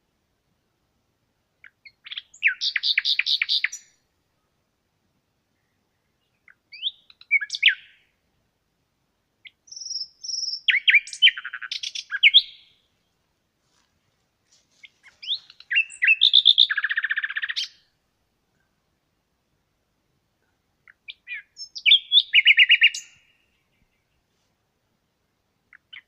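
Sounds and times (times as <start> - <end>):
birds singing: 1.6 - 4.0, 5.6 - 8.0, 9.4 - 13.1, 14.8 - 17.9, 20.8 - 24.3, 25.7 - 26.0.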